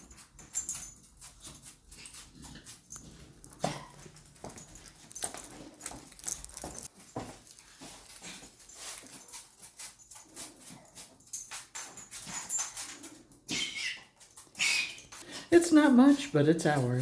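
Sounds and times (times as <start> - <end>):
light clicks and rustles: 0.0 - 13.4.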